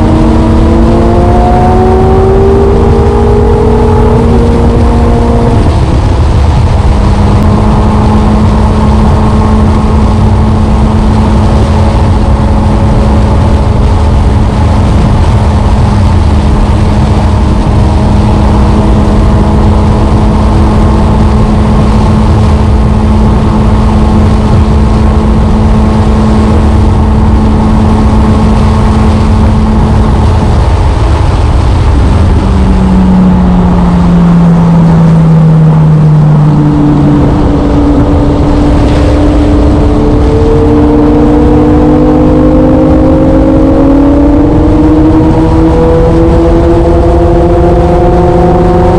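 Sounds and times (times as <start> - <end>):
heavy low rumble: 0.0 - 48.9
motorcycle engine running: 0.0 - 48.9.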